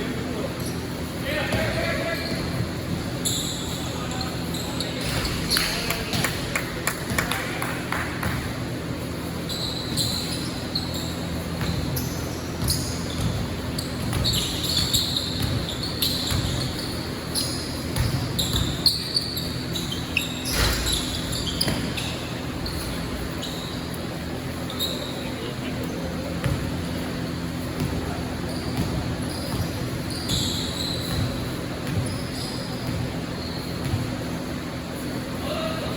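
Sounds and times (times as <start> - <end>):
shoe squeaks: 0.3 - 6.3, 8.8 - 35.7
basketball bouncing thuds: 26.4 - 26.8, 28.7 - 32.2, 33.8 - 34.2.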